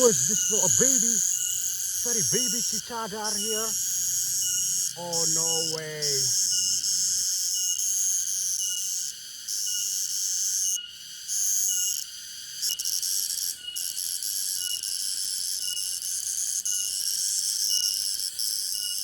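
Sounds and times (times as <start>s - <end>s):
cicadas buzzing: 0.0s - 15.0s.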